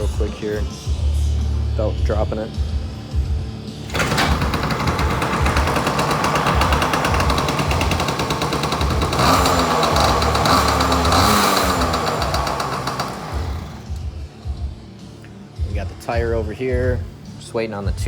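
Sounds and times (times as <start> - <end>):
small two-stroke engine revving: 3.9 - 14.0.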